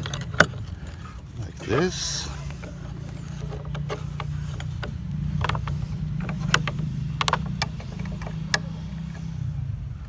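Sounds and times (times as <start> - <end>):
wooden board knocks and clicks: 2.6 - 8.7.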